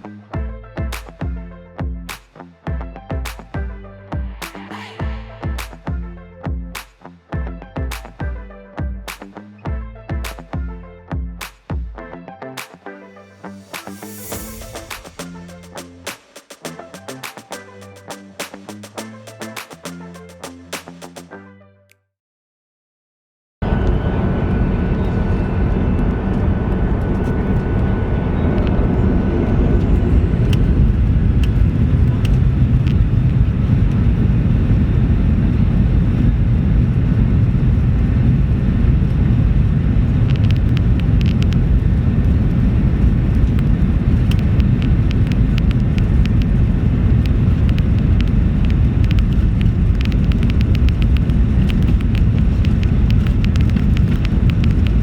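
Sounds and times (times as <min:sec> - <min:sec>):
jet engines and airflow rush: 0:03.2 - 0:06.2, 0:13.1 - 0:21.3, 0:23.6 - 0:55.0.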